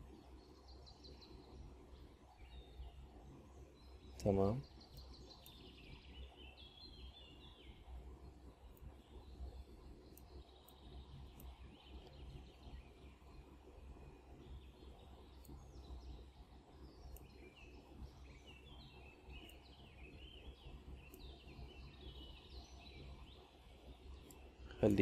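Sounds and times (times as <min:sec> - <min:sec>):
low steady hum: 0:00.0 - 0:25.0
small birds chirping: 0:00.0 - 0:25.0
faint clicks: 0:04.1 - 0:06.2, 0:07.9 - 0:13.6, 0:16.9 - 0:22.4, 0:23.0 - 0:25.0.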